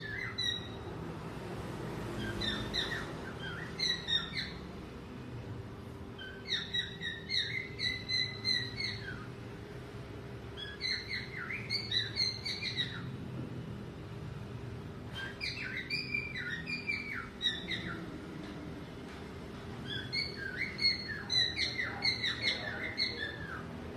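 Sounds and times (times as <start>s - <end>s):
cockatiel whistling: 0.0s - 0.7s, 2.2s - 4.6s, 6.2s - 9.3s, 10.6s - 13.1s, 15.2s - 18.0s, 19.8s - 23.6s
steady low hum: 0.0s - 23.9s.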